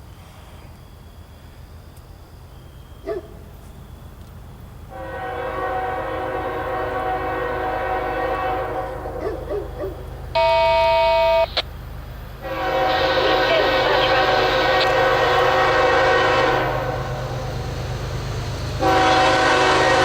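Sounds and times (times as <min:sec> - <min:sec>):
locomotive air horn: 0:04.9 - 0:09.4, 0:10.3 - 0:11.6, 0:12.4 - 0:17.6, 0:18.8 - 0:20.0.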